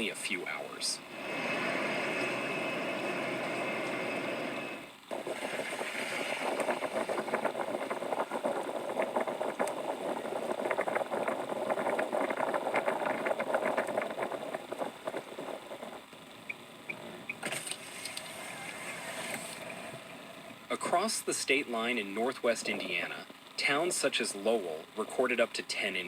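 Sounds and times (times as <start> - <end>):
vehicle engine crackling rattle: 4.9 - 18.2.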